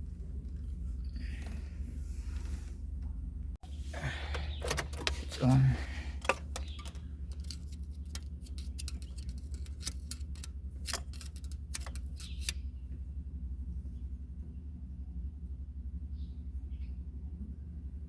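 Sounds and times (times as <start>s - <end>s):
steady low hum: 0.0s - 18.0s
sharp light clicks and ticks: 6.2s - 12.6s.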